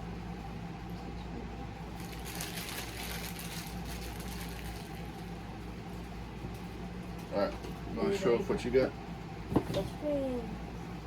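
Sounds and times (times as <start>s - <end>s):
low room hum: 0.0s - 11.0s
packaging rustling and crinkling: 2.0s - 5.0s.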